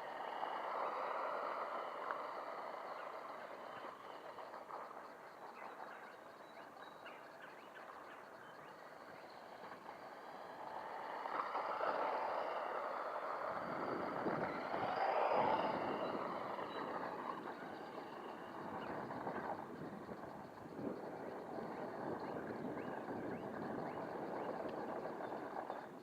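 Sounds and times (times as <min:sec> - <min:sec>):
tyres on rough gravel: 0:09.6 - 0:26.0.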